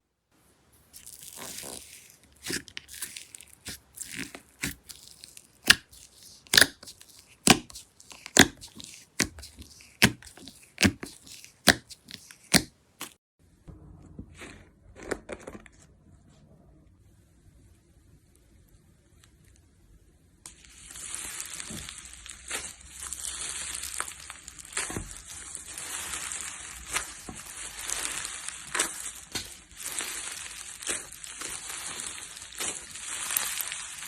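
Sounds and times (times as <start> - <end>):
hands handling slime: 0.8 - 13.2
slime crackling and popping: 0.8 - 13.2, 20.5 - 34.0.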